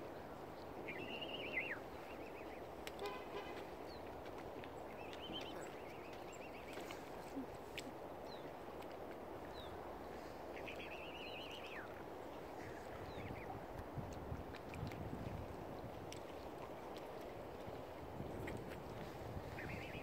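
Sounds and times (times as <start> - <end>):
birds calling: 4.7 - 7.0.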